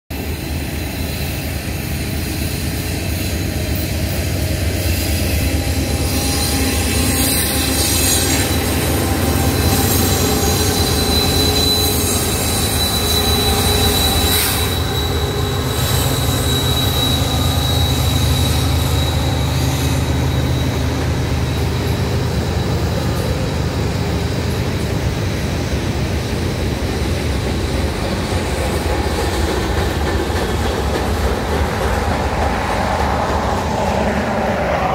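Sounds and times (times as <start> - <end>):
diesel locomotive engine rumble: 0.1 - 34.9
high wheel squeal: 0.2 - 25.7, 27.7 - 34.9.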